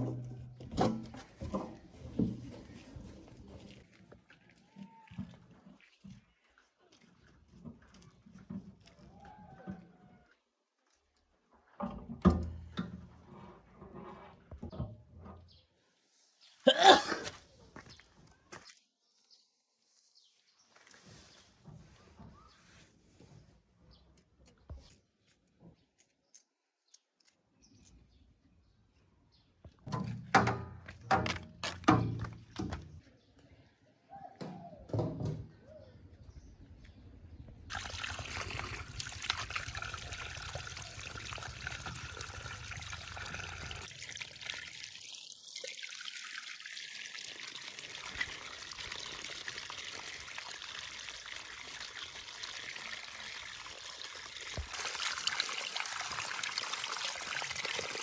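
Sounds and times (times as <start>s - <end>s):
knocks and clatters: 29.8s - 33.0s
water running: 37.7s - 58.0s.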